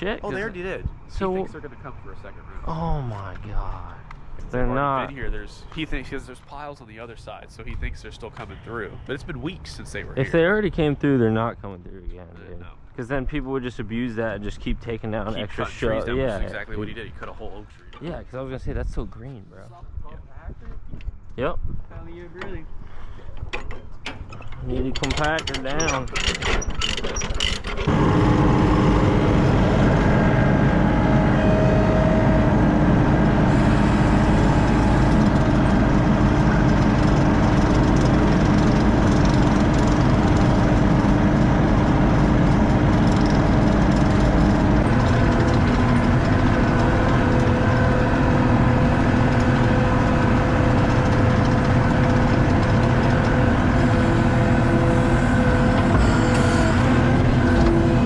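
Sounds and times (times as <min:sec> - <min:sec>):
construction machine engine running: 0:27.8 - 0:58.0.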